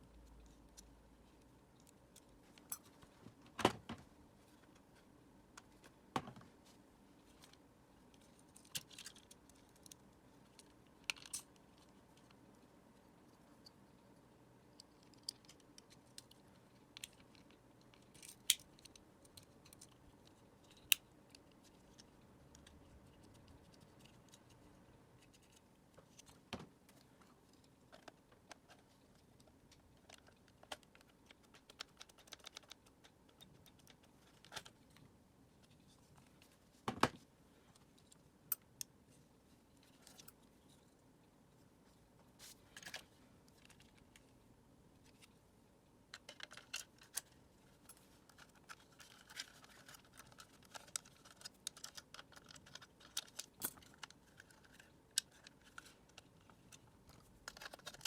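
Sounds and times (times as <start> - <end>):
plastic parts clicking and tapping: 25.2 - 34.8, 46.1 - 58.0.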